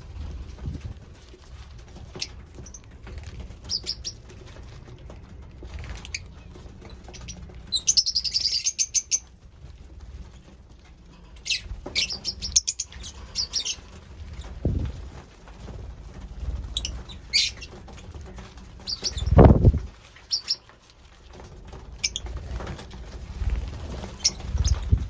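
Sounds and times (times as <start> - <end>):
lovebirds chirping: 6.0 - 9.3, 11.4 - 14.5, 16.8 - 17.8, 18.8 - 20.7.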